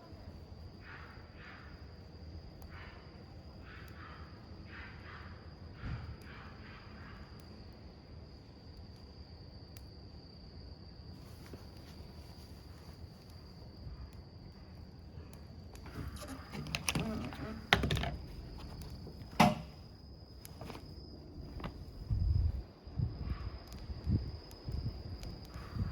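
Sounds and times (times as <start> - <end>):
high insect trill: 0.0 - 25.9
campfire burning: 0.1 - 4.5, 6.1 - 22.7
sharp pops of fire: 17.4 - 22.2.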